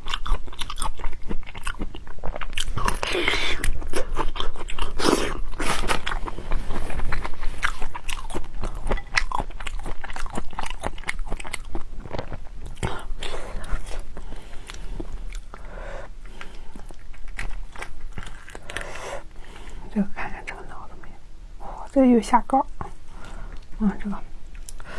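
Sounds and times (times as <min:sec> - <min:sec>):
chewing prawns with crunching: 0:00.0 - 0:19.0.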